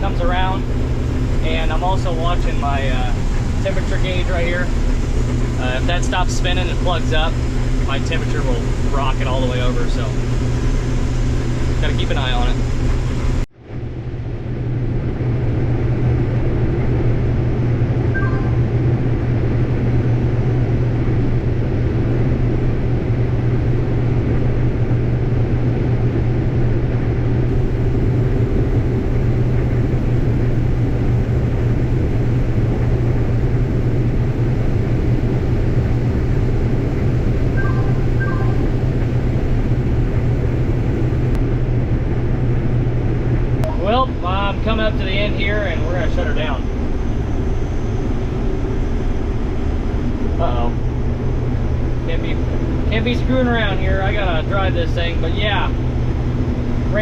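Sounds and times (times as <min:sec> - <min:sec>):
combine harvester drone: 0:00.0 - 0:57.0
faint short tones: 0:18.2 - 0:18.8.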